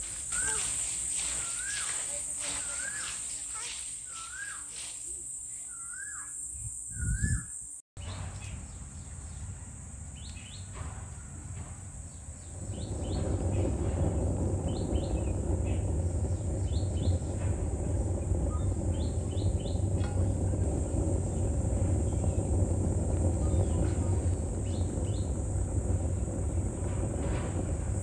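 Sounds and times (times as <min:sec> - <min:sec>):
small birds chirping: 0:00.2 - 0:10.8, 0:12.0 - 0:26.8
low rumbling noise: 0:06.9 - 0:28.0.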